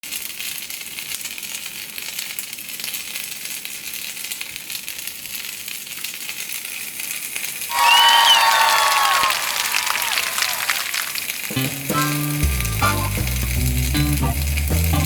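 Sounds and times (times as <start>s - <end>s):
meat sizzling on a hot plate: 0.1s - 7.7s, 11.3s - 15.0s.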